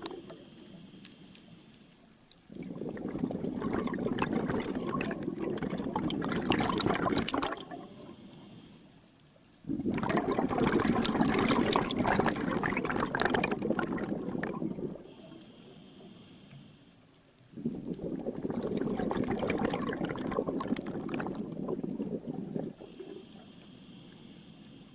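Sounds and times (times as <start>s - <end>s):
exhaled bubbles bursting: 0.0s - 0.4s, 2.5s - 8.1s, 9.6s - 15.1s, 17.5s - 23.1s
regulator inhalation hiss: 0.0s - 2.1s, 7.7s - 9.2s, 15.0s - 17.1s, 22.8s - 24.9s.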